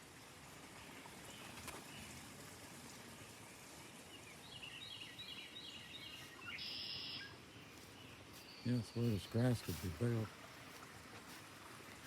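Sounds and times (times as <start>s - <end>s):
faint outdoor hiss: 0.0s - 12.0s
bird chirping: 4.5s - 9.6s.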